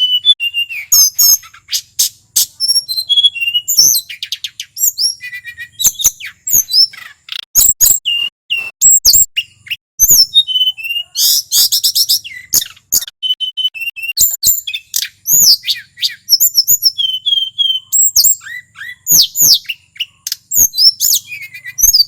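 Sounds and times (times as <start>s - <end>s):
songbird singing: 0.0s - 22.0s.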